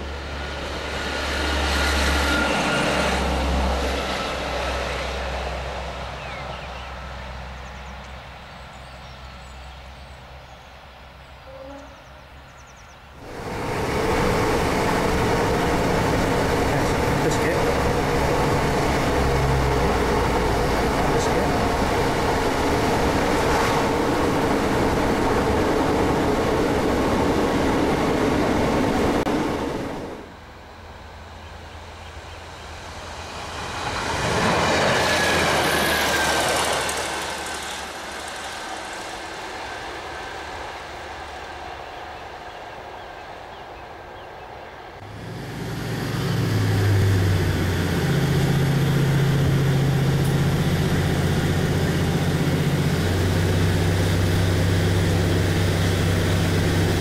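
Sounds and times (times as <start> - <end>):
diesel engine low drone: 0.0 - 57.0
diesel train passing by: 0.0 - 57.0
train carriage interior noise: 11.4 - 45.2.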